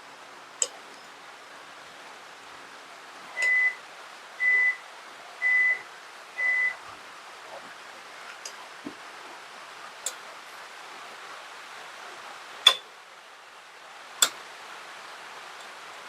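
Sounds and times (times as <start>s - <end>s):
appliance beeper high tone: 3.4s - 3.8s, 4.4s - 4.8s, 5.4s - 5.8s, 6.4s - 6.8s.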